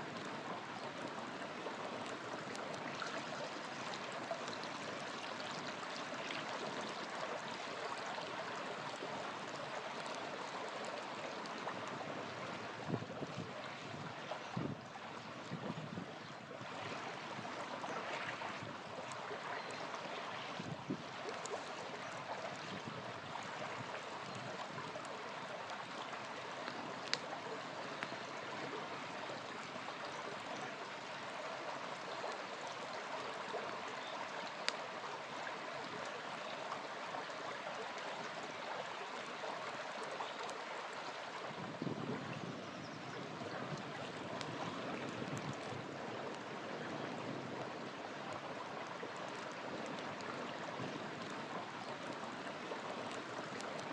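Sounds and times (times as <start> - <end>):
river flowing: 0.0 - 53.9
campfire pops and crackles: 23.8 - 28.6, 43.7 - 46.5, 53.0 - 53.9.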